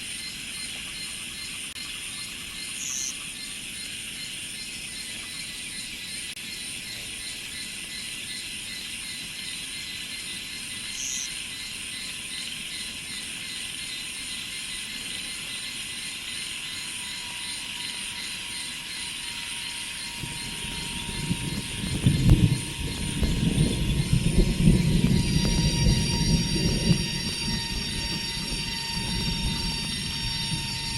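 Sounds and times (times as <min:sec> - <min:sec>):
cicadas and insects chorus: 0:00.0 - 0:30.9
train rumble: 0:16.7 - 0:30.9.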